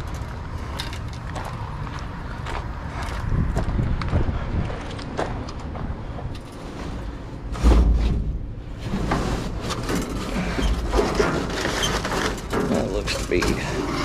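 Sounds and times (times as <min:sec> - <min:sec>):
scrap metal rattling: 0:06.5 - 0:14.0
heavy thump: 0:07.5 - 0:08.6.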